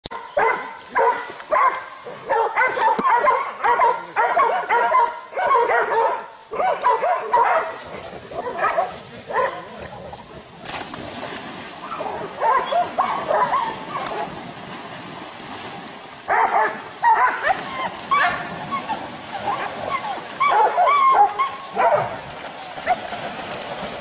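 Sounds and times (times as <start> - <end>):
dog barking: 0.1 - 9.7, 11.9 - 14.3, 16.3 - 18.5, 20.4 - 22.2.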